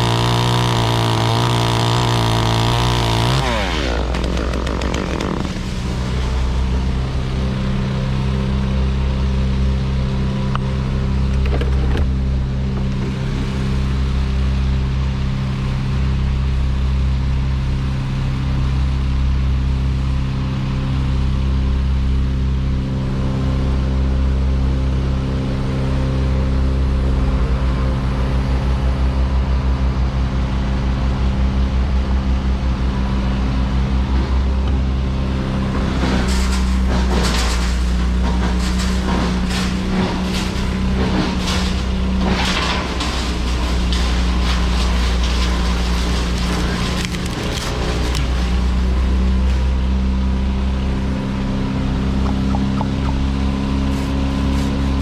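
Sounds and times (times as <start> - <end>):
large engine running: 0.0 - 55.0
sharp knocks and cracks: 0.1 - 5.7, 35.9 - 48.8.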